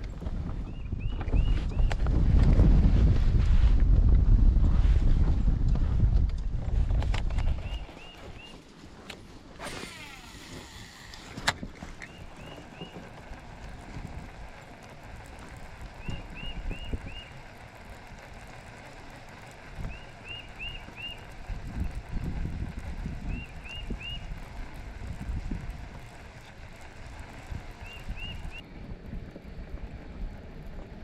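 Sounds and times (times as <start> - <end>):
wind rumble on microphone: 0.0 - 31.0
sharp clicks: 5.7 - 28.6
bird chirping: 12.0 - 13.1, 15.9 - 17.4, 19.8 - 21.4, 23.2 - 24.4, 27.8 - 28.6.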